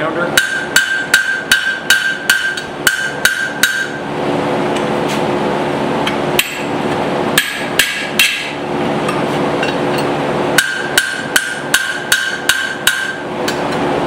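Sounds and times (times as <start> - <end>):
hammer striking steel on anvil: 0.4 - 4.0, 6.4 - 6.7, 7.4 - 8.6, 9.6 - 13.8.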